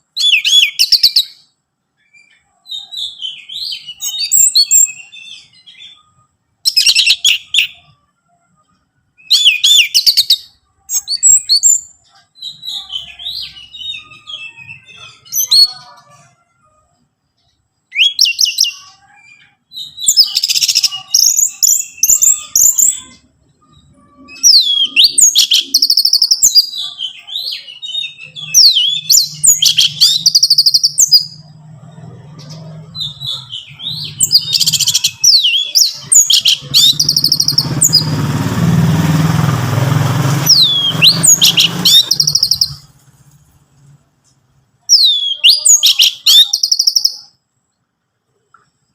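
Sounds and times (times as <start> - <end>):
bird singing whistles and trills: 0.1 - 8.0, 9.2 - 15.9, 17.9 - 31.5, 32.4 - 38.2, 40.4 - 43.0, 44.8 - 47.4.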